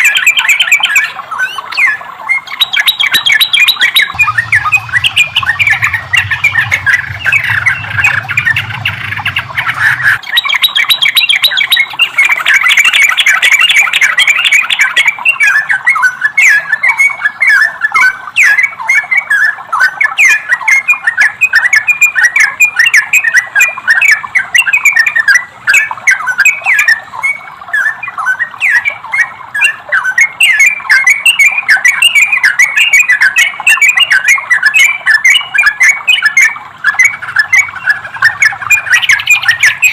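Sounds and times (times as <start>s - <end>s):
bird chattering song: 0.0s - 39.9s
low hum: 4.1s - 10.2s.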